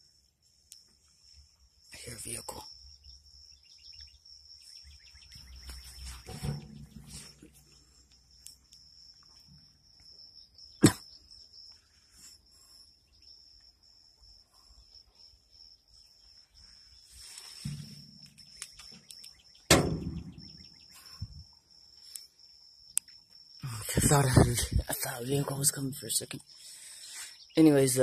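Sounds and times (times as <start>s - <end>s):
insects droning: 0.0s - 28.0s
sharp knocks: 19.7s - 20.8s.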